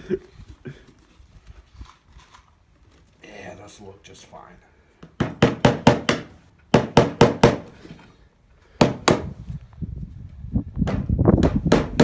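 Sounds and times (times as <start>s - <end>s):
hammer driving nails into wood: 5.0s - 7.7s, 8.8s - 9.3s, 10.8s - 12.0s.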